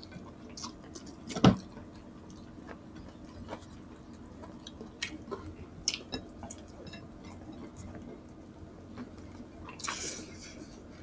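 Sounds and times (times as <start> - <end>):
wet chewing and mouth sounds: 0.0 - 10.6.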